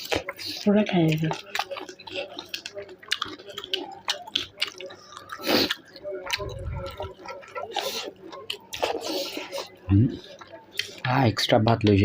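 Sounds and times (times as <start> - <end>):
wet chewing and lip-smacking: 0.0 - 11.1.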